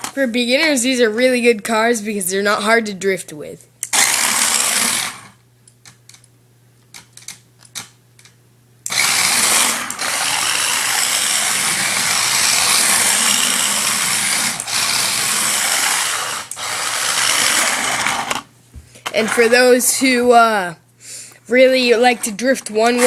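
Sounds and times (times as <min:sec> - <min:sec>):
toy car electric motor whirring: 0:03.8 - 0:05.4, 0:08.9 - 0:19.9
wheels spinning and sliding: 0:04.0 - 0:05.4, 0:08.9 - 0:20.0.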